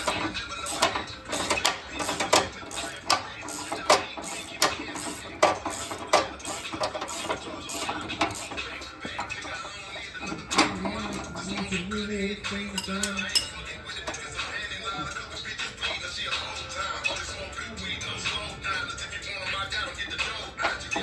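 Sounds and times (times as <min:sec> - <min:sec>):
ratchet clicks: 0:00.0 - 0:09.5
metal tools knocking: 0:00.0 - 0:14.3.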